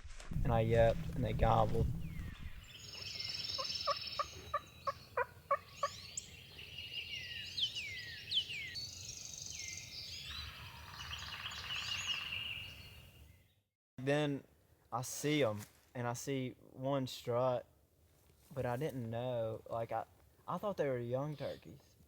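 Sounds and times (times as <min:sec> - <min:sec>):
songbirds chirping: 0:00.4 - 0:13.6, 0:18.6 - 0:22.0
turkey gobbling: 0:03.5 - 0:06.0
turkey call yelps: 0:03.5 - 0:06.3.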